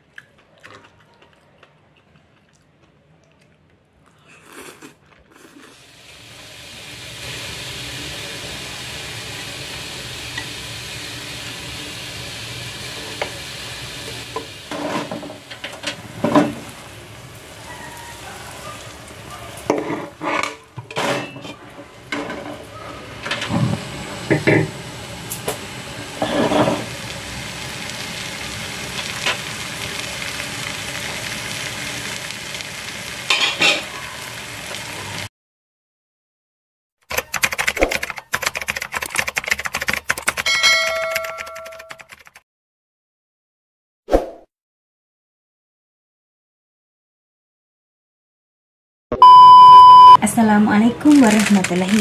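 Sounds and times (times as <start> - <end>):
food sizzling in oil: 5.8 - 20.2, 21.9 - 35.3
utensils clacking against pan: 33.3 - 33.9.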